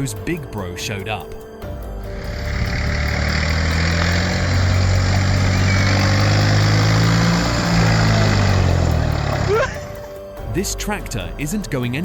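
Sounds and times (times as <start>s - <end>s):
tractor engine running: 1.8s - 10.0s.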